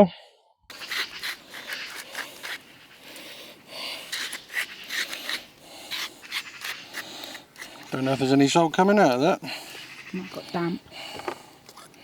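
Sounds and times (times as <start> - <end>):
spice grinder rasping: 0.7 - 8.3.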